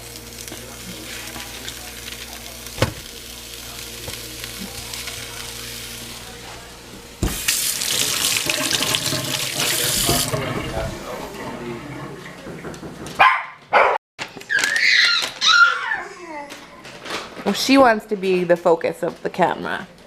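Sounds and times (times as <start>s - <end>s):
tap water running into sink: 7.2s - 13.1s.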